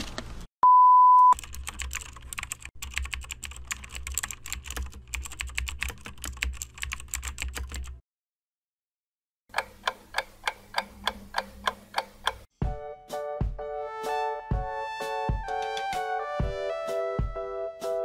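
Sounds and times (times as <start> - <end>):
high test-tone beep: 0.6 - 1.4
keyboard typing clicks: 1.4 - 8.0.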